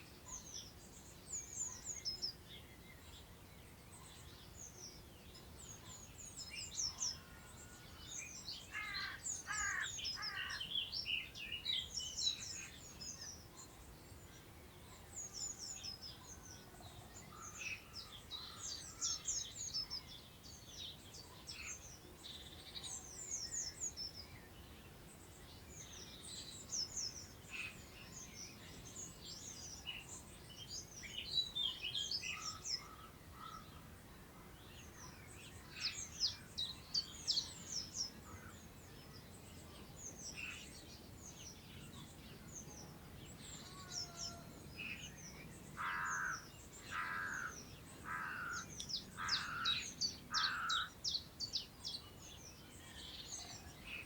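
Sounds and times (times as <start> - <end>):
songbirds singing: 0.0 - 54.0
wind in grass: 0.0 - 54.0.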